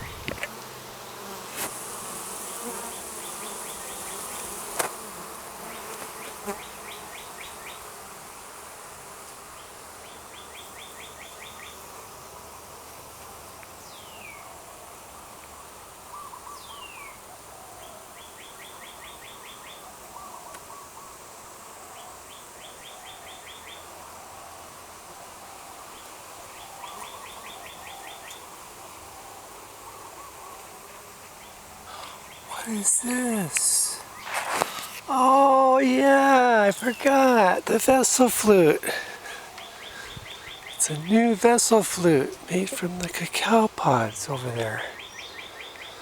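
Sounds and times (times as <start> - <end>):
bees buzzing: 0.0 - 10.2, 30.6 - 45.8.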